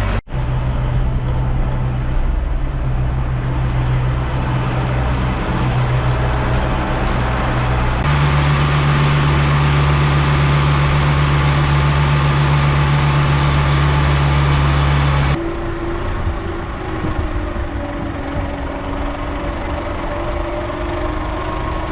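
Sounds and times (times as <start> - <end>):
boat engine running: 3.0 - 9.6.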